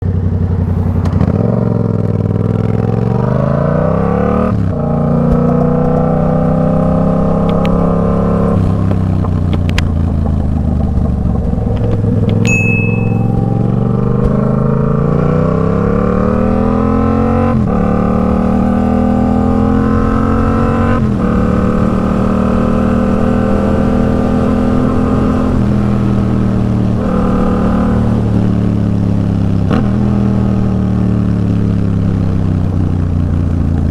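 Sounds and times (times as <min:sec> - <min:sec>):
motorcycle engine accelerating: 0:00.0 - 0:33.9
high beep: 0:12.4 - 0:14.1.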